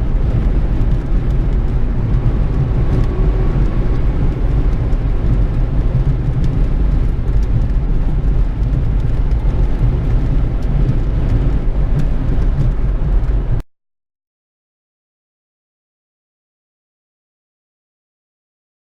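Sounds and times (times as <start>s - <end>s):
vehicle road and engine noise: 0.0s - 13.6s.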